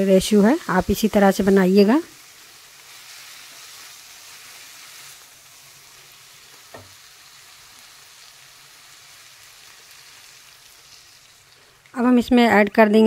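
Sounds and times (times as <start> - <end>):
leaves sizzling faintly in oil: 0.0 - 13.0
light knock: 6.7 - 6.9.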